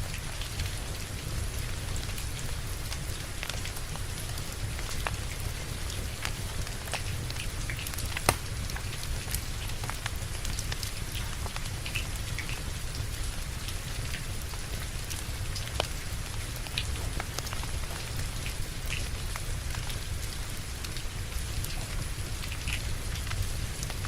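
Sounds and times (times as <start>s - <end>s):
steady rain: 0.0s - 24.0s
wood fire crackling: 0.2s - 24.0s.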